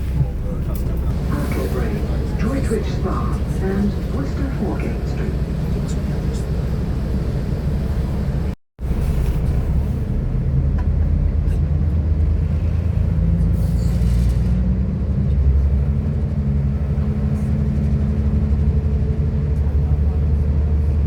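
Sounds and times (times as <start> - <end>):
train diesel engine rumble: 0.0 - 21.0.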